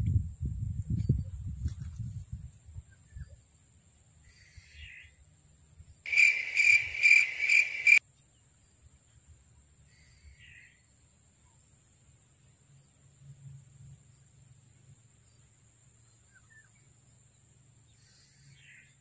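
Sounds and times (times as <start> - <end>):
high-pitched insect drone: 6.1 - 8.0
loud pulsed insect call: 6.1 - 8.0.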